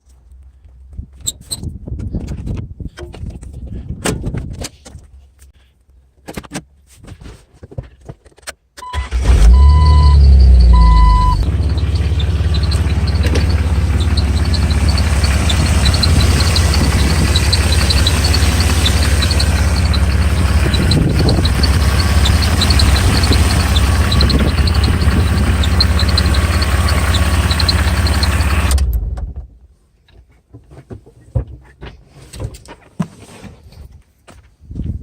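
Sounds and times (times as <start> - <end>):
car engine starting and idling: 8.8 - 29.4
high-pitched belt chirp: 9.5 - 28.5.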